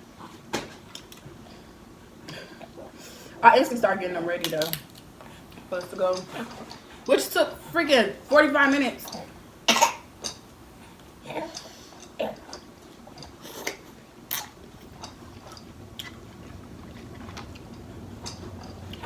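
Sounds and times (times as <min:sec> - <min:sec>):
chewing with lip smacks: 0:10.2 - 0:19.0.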